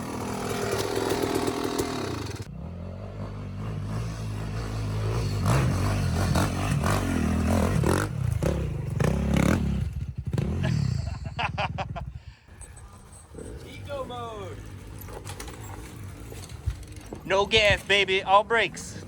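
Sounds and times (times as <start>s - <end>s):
dirt bike engine running: 0.0s - 19.0s
clattering and knocks: 14.6s - 17.9s.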